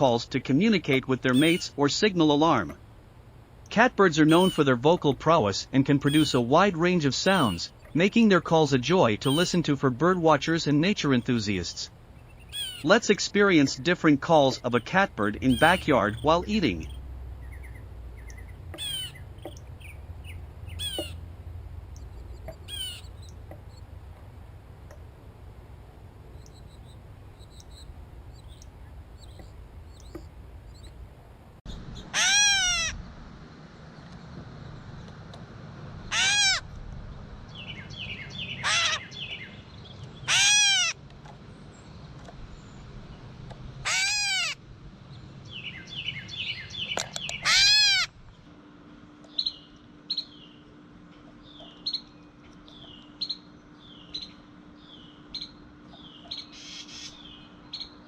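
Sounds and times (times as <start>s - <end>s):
faint bird chirps: 1.3s - 1.8s, 4.2s - 4.8s, 5.9s - 6.5s, 9.1s - 9.6s, 12.2s - 12.9s, 14.4s - 21.3s, 26.3s - 31.0s
catbird mew call: 4.3s - 4.6s, 12.5s - 12.9s, 18.8s - 19.2s, 20.7s - 21.2s, 32.0s - 33.0s, 36.1s - 36.6s, 38.6s - 39.2s, 40.2s - 41.0s, 43.8s - 44.6s, 47.4s - 48.1s.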